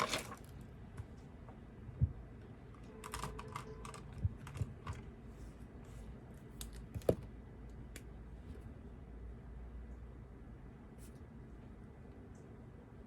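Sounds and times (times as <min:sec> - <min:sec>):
computer keyboard typing: 0:02.8 - 0:05.1.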